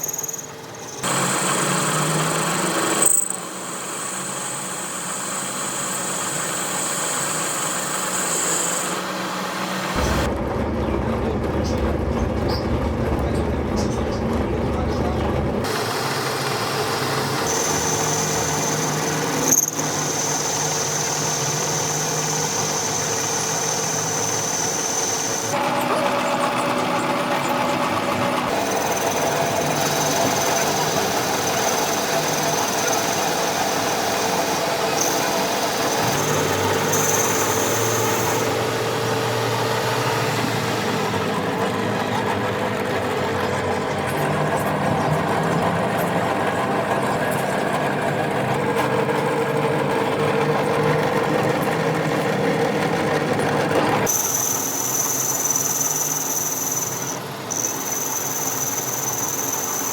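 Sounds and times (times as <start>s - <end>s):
machinery whining: 0.0s - 59.9s.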